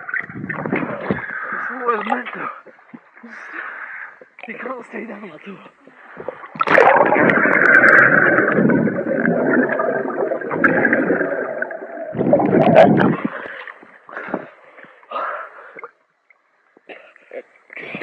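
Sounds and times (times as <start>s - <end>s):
muffled underwater rushing and bubbling: 6.0s - 14.4s.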